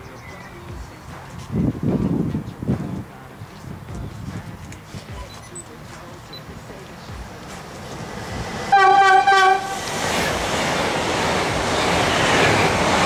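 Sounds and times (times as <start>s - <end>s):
train passing at speed: 6.4s - 13.0s
train horn blasts: 8.7s - 9.8s.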